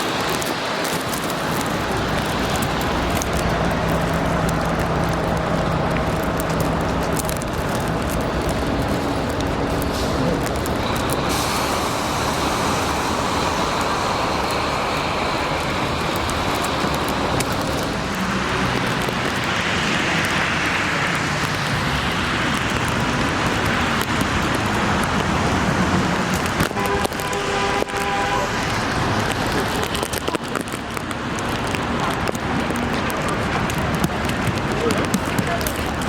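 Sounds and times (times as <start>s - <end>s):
street traffic noise: 0.0s - 36.0s
vehicle passing close: 1.8s - 23.2s.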